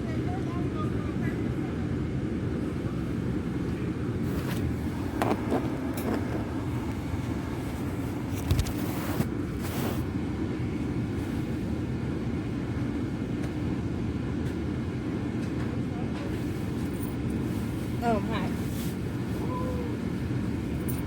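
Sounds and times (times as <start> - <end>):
car engine running: 4.2 - 10.0.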